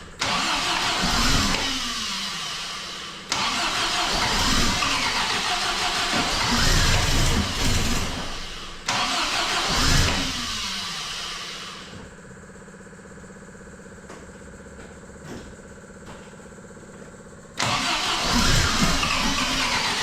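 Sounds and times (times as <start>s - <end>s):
engine cranking and catching: 0.0s - 11.4s, 17.6s - 20.0s.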